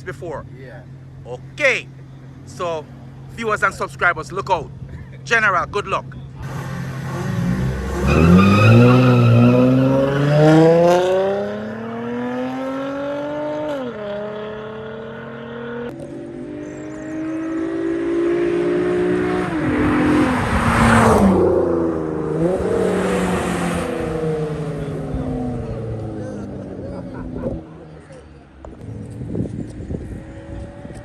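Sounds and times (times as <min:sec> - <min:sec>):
race car engine accelerating: 0:06.4 - 0:31.0.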